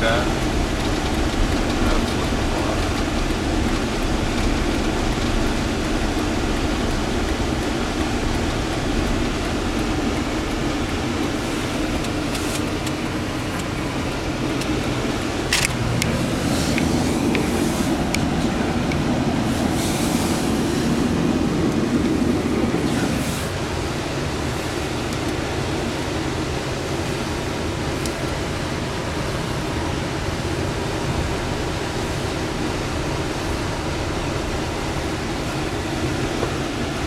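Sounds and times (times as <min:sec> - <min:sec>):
car driving on snowy road: 0:00.0 - 0:37.0
sharp clicks: 0:14.5 - 0:19.0.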